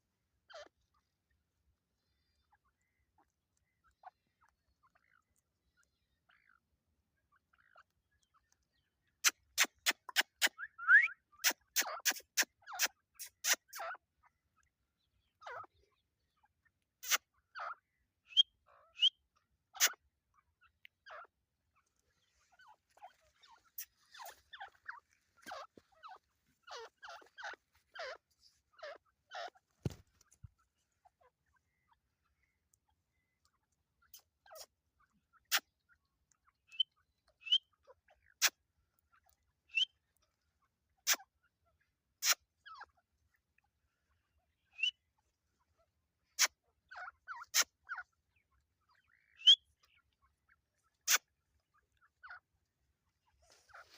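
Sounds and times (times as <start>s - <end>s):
partridges calling: 7.5s - 16.4s, 17.0s - 38.6s, 39.3s - 40.0s, 42.2s - 43.0s, 44.0s - 45.6s, 46.2s - 52.4s, 53.2s - 53.9s.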